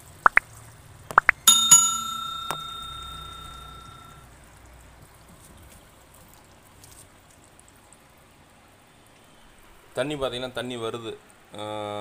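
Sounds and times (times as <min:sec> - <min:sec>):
metal struck ringing: 0:01.4 - 0:04.2.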